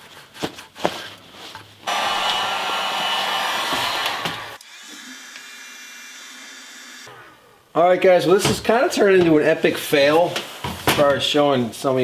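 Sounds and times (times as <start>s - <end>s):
hot-air blower whooshing: 1.9s - 4.6s.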